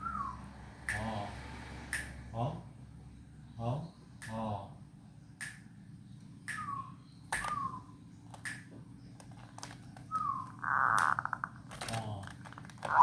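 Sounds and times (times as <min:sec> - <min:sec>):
dove cooing and clicking: 0:09.2 - 0:13.0.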